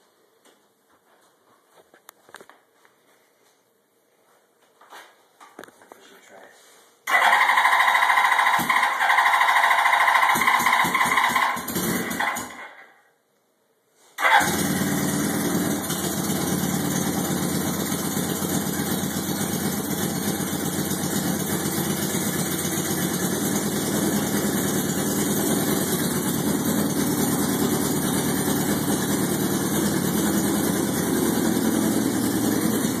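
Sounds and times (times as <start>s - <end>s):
motorcycle engine running: 7.1s - 12.6s, 14.2s - 33.0s.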